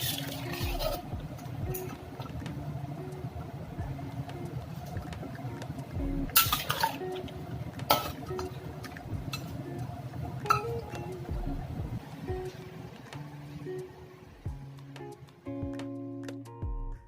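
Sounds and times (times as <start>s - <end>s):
utensil clinking against cookware: 0.0s - 2.3s, 6.3s - 9.6s.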